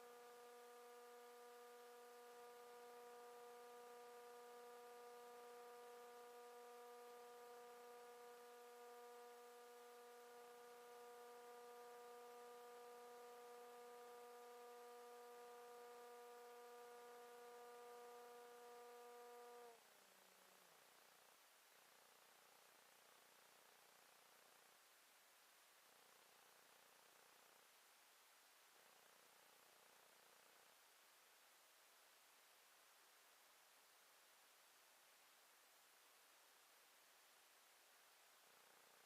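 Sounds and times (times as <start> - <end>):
model plane electric motor hum: 0.0 - 19.8.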